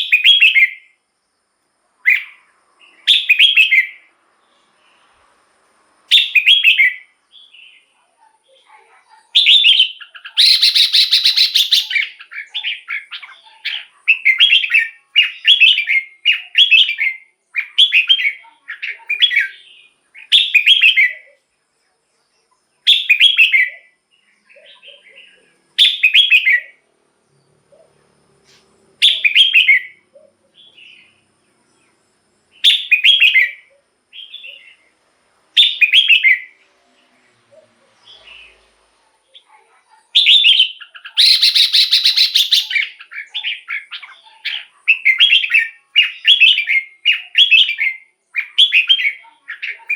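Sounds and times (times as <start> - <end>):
bird singing whistled phrases: 0.0 - 1.0, 3.0 - 4.1, 6.1 - 7.8, 9.4 - 21.3, 22.9 - 24.0, 25.8 - 26.8, 29.0 - 30.0, 32.6 - 34.8, 35.6 - 36.6, 40.2 - 49.9.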